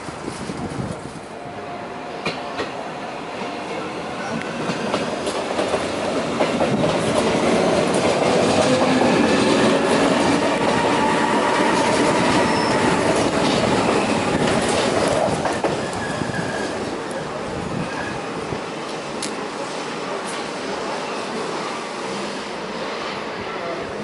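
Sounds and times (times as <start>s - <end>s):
high wheel squeal: 12.4s - 13.0s.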